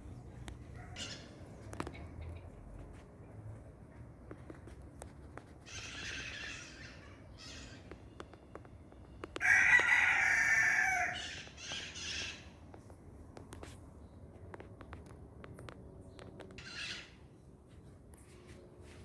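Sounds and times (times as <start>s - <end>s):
rooster crowing: 9.4s - 11.3s.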